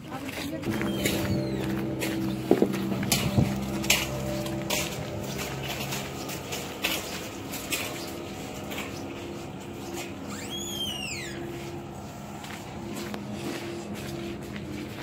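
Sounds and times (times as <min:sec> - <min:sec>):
light knocks and steps: 0:00.2 - 0:15.0
steady low hum: 0:00.7 - 0:10.3
whistled bird call: 0:10.3 - 0:11.4.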